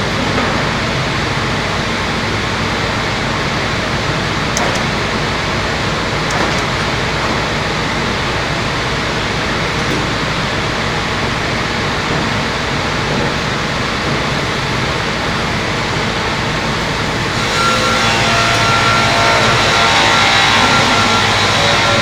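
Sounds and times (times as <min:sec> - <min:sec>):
circular sawmill roaring: 0:00.0 - 0:22.0
high whine: 0:14.0 - 0:22.0.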